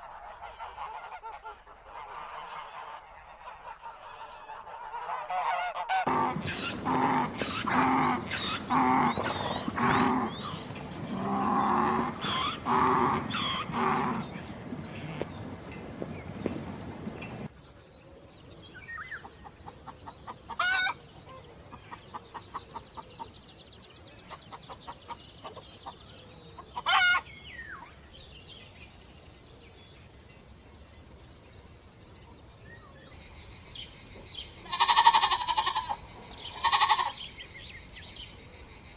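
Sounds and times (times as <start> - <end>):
farm animals calling: 3.6 - 17.5, 19.2 - 23.4, 24.2 - 27.8, 34.6 - 37.3.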